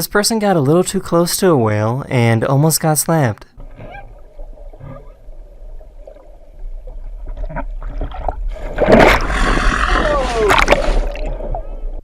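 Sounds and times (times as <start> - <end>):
water moving: 3.5 - 12.0
whale slapping the water: 3.6 - 11.9.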